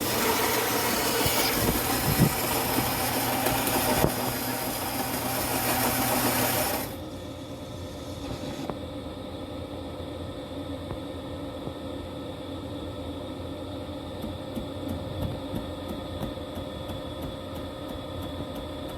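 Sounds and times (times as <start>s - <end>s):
espresso machine buzzing and hissing: 0.0s - 10.9s.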